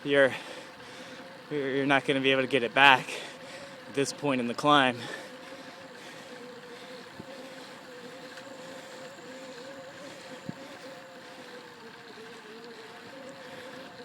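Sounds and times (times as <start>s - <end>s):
bicycle riding hum: 0.0s - 14.0s
faint clicks: 8.2s - 9.7s.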